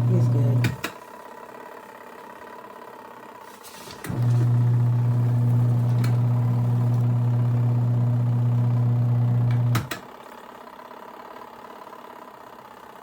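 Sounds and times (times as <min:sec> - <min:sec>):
washing machine motor humming: 0:00.0 - 0:00.9, 0:03.7 - 0:10.0
washing machine switch click: 0:00.6 - 0:01.0, 0:09.4 - 0:10.0.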